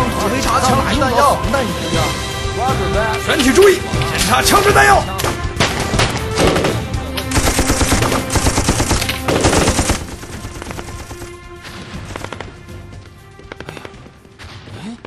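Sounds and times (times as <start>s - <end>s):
rapid rifle gunfire: 7.3s - 11.4s, 12.0s - 12.6s.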